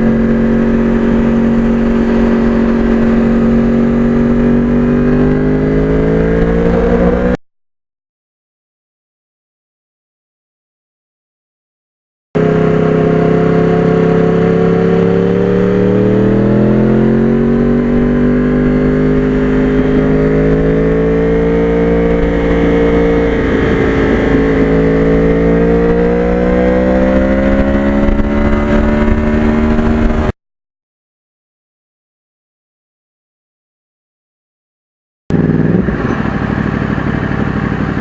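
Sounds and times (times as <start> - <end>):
motorcycle engine running: 0.0 - 7.4, 12.4 - 30.3, 35.3 - 38.0.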